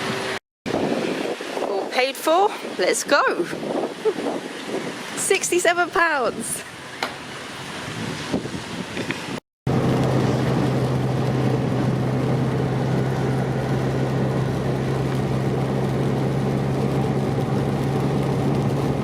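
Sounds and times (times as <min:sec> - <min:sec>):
car engine and road drone: 0:00.0 - 0:01.4, 0:09.0 - 0:19.0.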